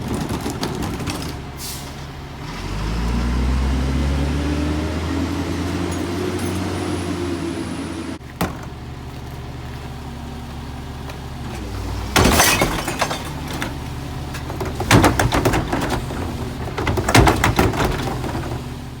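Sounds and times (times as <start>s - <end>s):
clattering and banging: 0.0s - 2.0s, 11.5s - 18.8s
garbage truck diesel engine: 0.0s - 19.0s.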